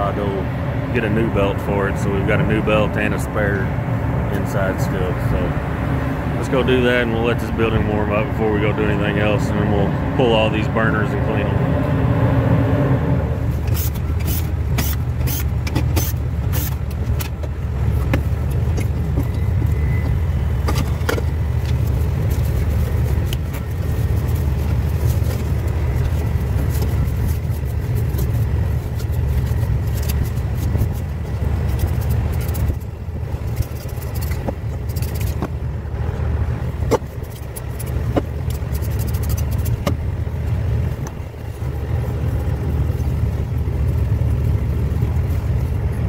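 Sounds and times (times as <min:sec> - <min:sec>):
low rumble: 0:00.0 - 0:46.0
sharp clicks and knocks: 0:13.6 - 0:23.7, 0:29.0 - 0:35.6, 0:36.8 - 0:40.1.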